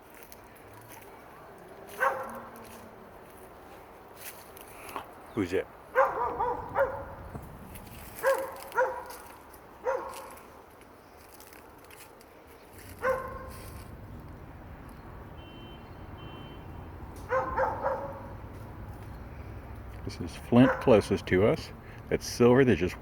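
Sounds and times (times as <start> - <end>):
dog barking: 1.9 - 2.6, 5.9 - 7.2, 8.2 - 10.4, 13.0 - 13.6, 17.2 - 18.3, 20.6 - 21.1.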